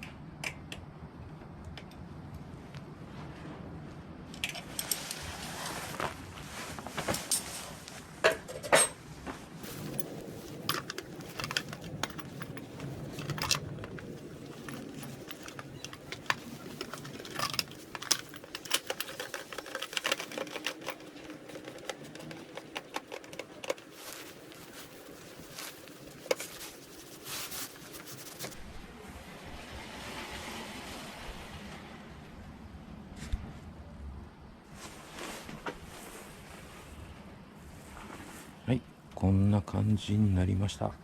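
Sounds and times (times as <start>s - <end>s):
hand tools clinking on metal: 9.6s - 28.4s.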